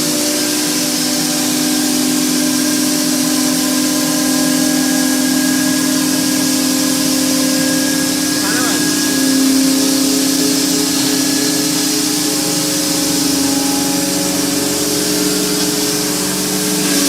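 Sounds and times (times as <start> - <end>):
grinding machine hum: 2.4 - 17.0
constant hiss: 7.6 - 17.0.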